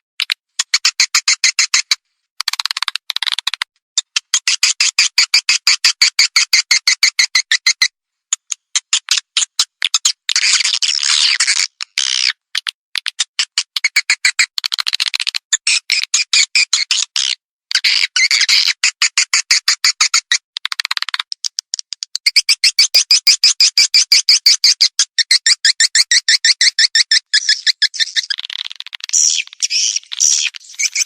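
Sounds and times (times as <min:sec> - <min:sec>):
swiftlet chirping clicks: 0:08.3 - 0:10.2, 0:27.5 - 0:31.0.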